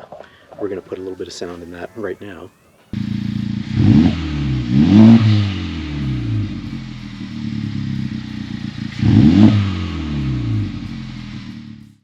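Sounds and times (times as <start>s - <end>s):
car engine revving: 2.5s - 12.0s.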